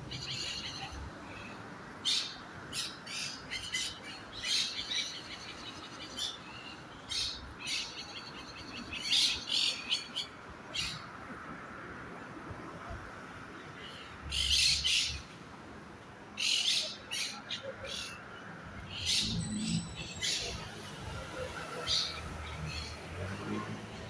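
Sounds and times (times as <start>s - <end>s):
birds chirping: 16.4s - 24.0s.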